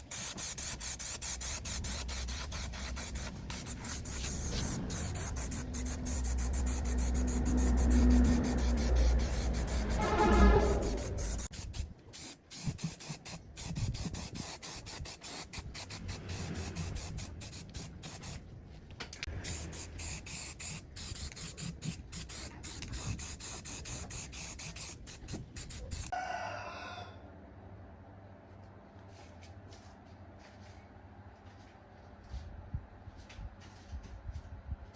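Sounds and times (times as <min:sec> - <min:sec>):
hand abrasive scraping: 0:00.0 - 0:11.8.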